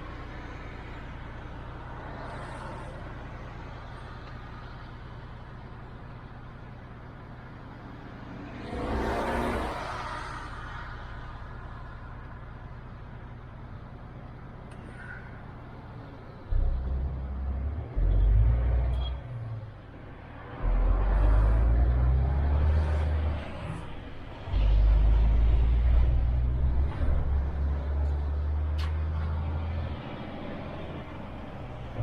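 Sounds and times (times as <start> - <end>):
truck diesel engine rumbling: 10.4 - 32.0.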